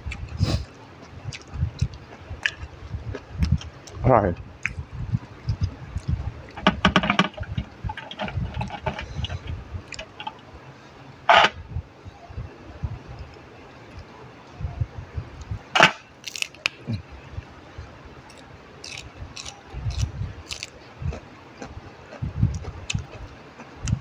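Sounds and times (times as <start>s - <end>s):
mouth clicks and smacks: 0.0s - 4.0s, 4.6s - 4.8s, 5.4s - 6.7s
chewing raw vegetables: 1.0s - 4.0s, 16.2s - 16.8s, 18.3s - 24.0s.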